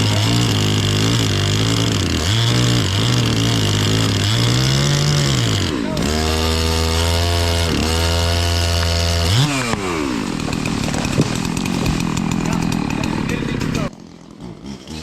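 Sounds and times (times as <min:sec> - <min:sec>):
chainsaw engine running: 0:00.0 - 0:15.0.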